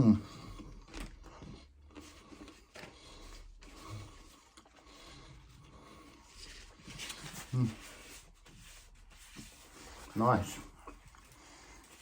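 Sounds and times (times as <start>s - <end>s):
person chewing food: 0.3s - 5.7s
light crackles and rustles: 0.4s - 12.0s.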